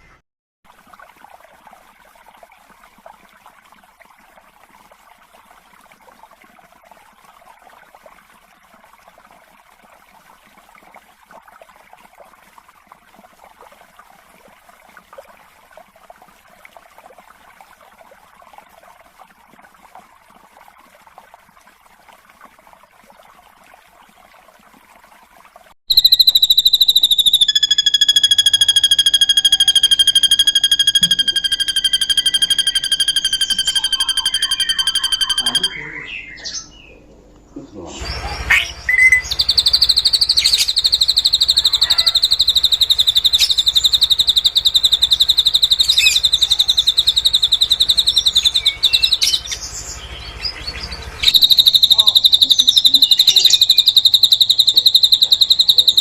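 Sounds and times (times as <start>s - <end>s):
lower held whistle: 25.9s - 36.0s, 38.5s - 49.5s, 51.2s - 56.0s
bird's loud high whistle: 25.9s - 36.1s, 38.2s - 49.5s
faint chirring: 25.9s - 36.2s.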